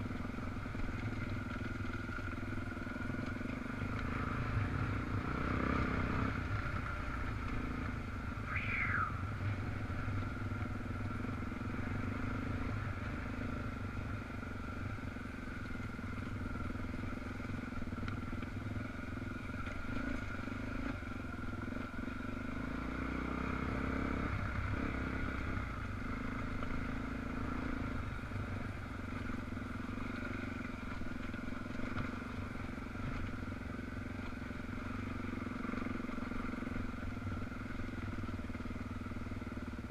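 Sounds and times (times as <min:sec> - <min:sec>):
motorcycle engine running: 0:00.0 - 0:39.9
falling squeal: 0:08.5 - 0:09.3.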